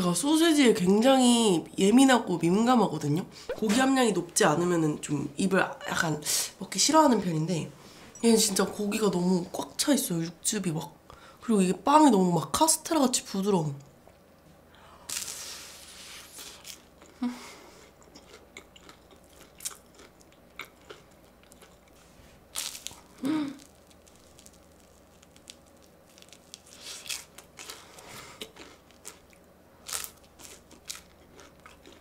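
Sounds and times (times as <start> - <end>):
person chewing crispy food: 15.1 - 32.0.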